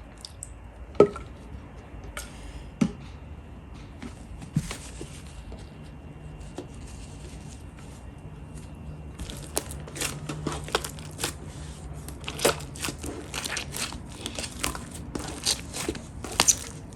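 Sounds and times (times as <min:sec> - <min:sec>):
faint crackling: 0:09.2 - 0:16.9
slime squeezed by hand: 0:09.2 - 0:16.9.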